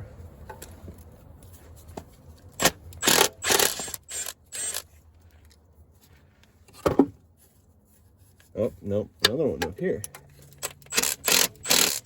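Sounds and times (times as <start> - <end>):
hand tool ratcheting on bolt: 2.6 - 4.8, 10.0 - 12.0.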